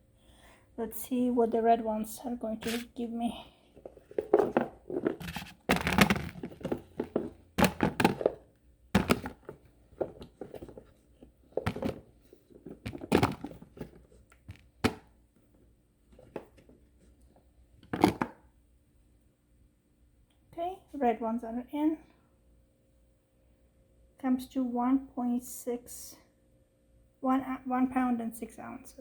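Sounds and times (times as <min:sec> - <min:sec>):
potatoes dropping into container: 0:04.2 - 0:10.8, 0:11.6 - 0:15.1, 0:17.8 - 0:18.4.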